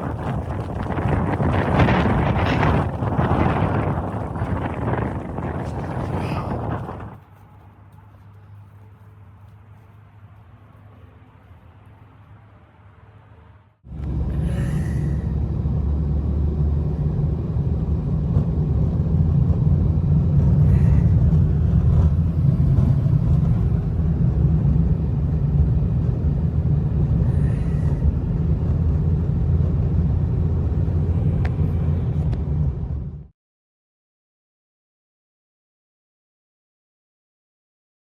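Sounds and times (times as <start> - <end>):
strong wind buffeting microphone: 0.0 - 7.4, 13.9 - 33.3.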